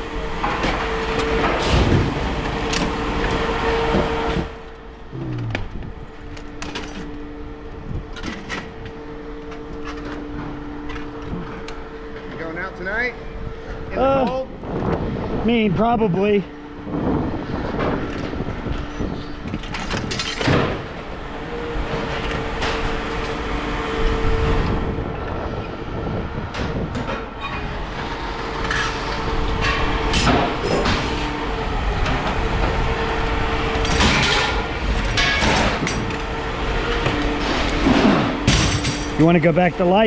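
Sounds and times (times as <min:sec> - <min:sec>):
engine hum and rumble: 0:00.0 - 0:15.7, 0:16.5 - 0:40.0
scrap metal clanking and rattling: 0:33.8 - 0:36.3, 0:37.0 - 0:39.5.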